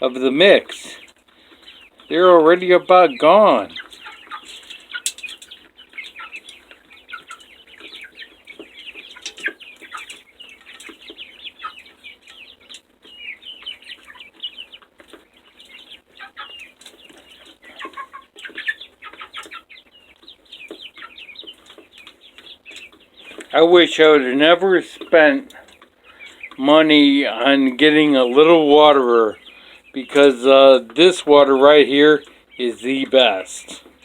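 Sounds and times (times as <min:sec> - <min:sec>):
chicks chirping and clucking: 0:00.0 - 0:34.0.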